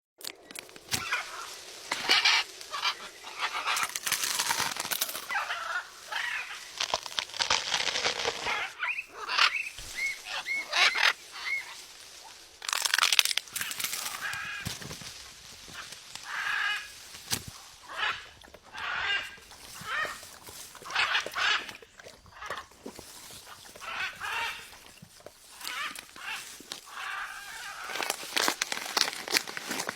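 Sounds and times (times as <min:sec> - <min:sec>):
parrot squawking and chirping: 0:05.2 - 0:11.8, 0:17.8 - 0:20.2.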